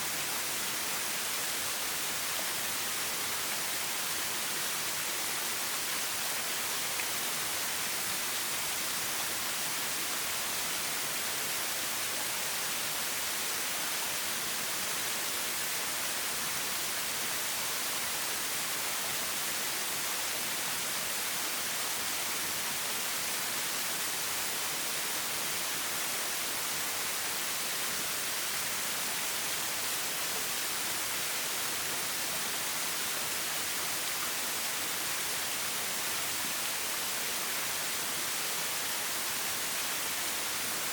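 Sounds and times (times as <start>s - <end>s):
forest stream flowing: 0.0s - 40.9s.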